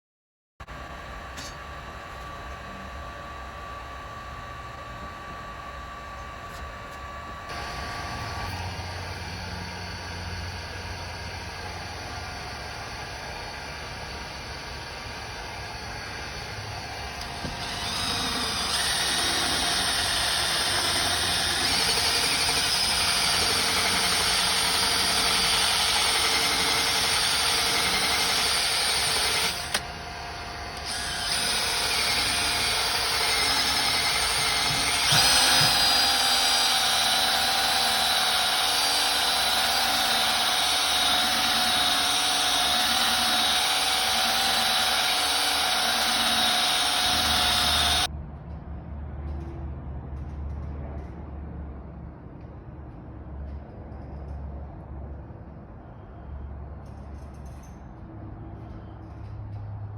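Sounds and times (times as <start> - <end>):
small electric power tool running: 2.2 - 48.1.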